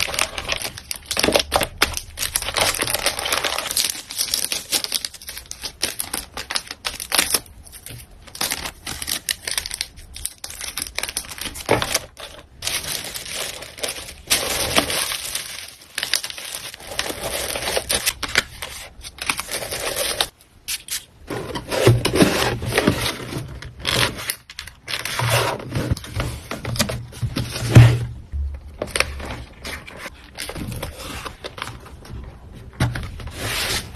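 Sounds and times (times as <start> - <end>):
packaging crinkling and rustling: 0.0 - 20.4, 28.7 - 33.9.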